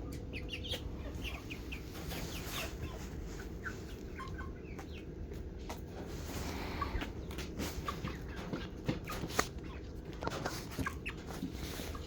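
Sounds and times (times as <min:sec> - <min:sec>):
chickens peeping and clucking: 0:00.0 - 0:12.0.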